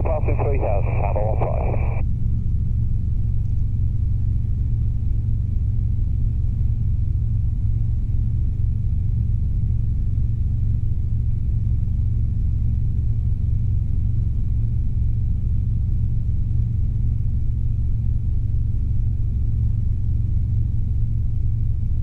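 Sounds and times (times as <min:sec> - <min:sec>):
helicopter engine and rotor rumble: 0:00.0 - 0:02.5.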